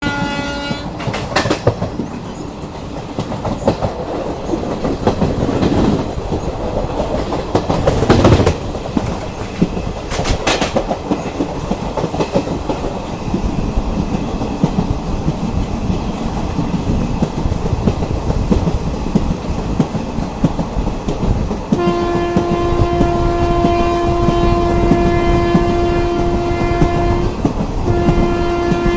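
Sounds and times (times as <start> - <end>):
train horn: 0.0 - 1.0, 21.7 - 28.9
train rumbling on rails: 0.0 - 28.9
wheels clickety-clack: 0.8 - 28.9.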